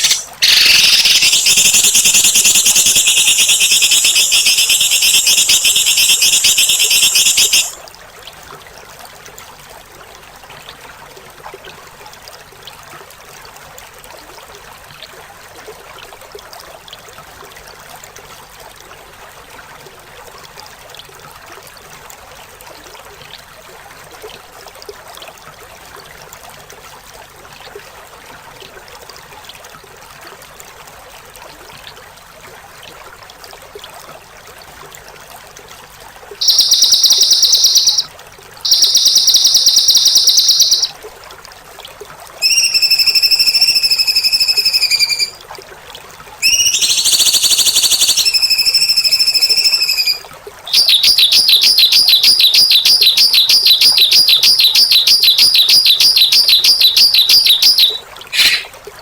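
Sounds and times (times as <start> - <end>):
songbird trilling: 0.0 - 7.8, 36.4 - 40.9, 42.4 - 45.4, 46.4 - 58.7
running water: 0.0 - 59.0.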